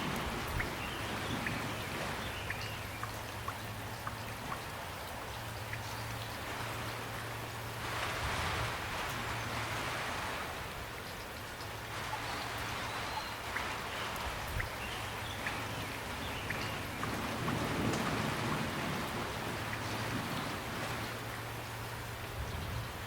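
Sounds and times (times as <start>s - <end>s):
rain hissing: 0.0s - 23.0s.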